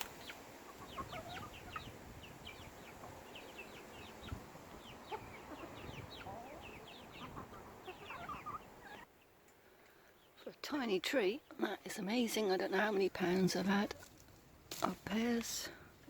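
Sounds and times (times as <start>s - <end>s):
chicks peeping: 0.0s - 9.3s.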